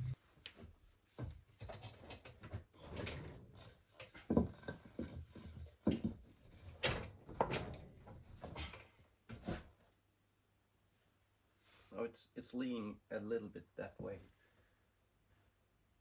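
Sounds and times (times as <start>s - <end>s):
tools knocking and clattering: 1.2s - 8.7s.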